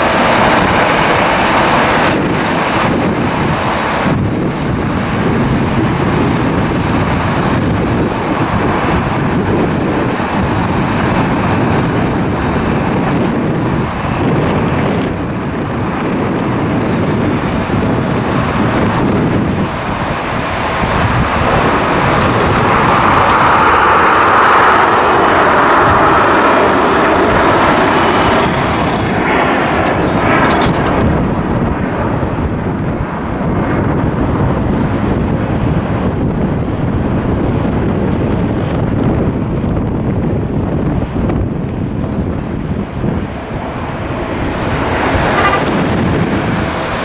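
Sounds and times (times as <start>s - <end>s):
jet airliner engines: 0.0s - 47.0s
wind buffeting microphone: 0.0s - 47.0s.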